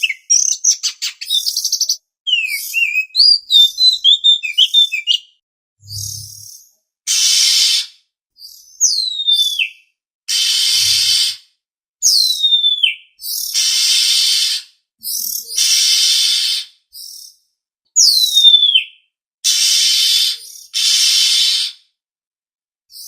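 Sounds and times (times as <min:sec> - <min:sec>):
bird whistles sliding down: 0:07.1 - 0:07.9, 0:10.3 - 0:11.4, 0:15.5 - 0:16.7, 0:19.5 - 0:21.8
harsh rasping bird calls: 0:07.1 - 0:08.0, 0:10.3 - 0:11.4, 0:12.6 - 0:17.2, 0:19.4 - 0:21.8.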